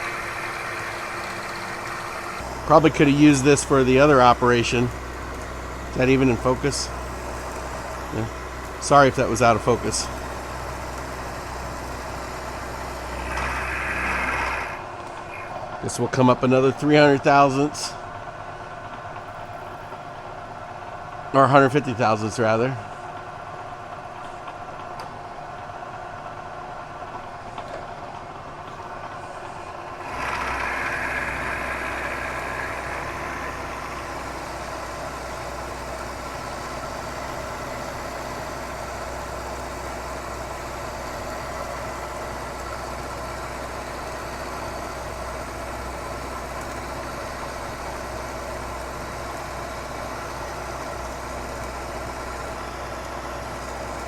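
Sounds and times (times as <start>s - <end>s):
milling machine cutting metal: 0.0s - 15.6s, 29.2s - 54.0s.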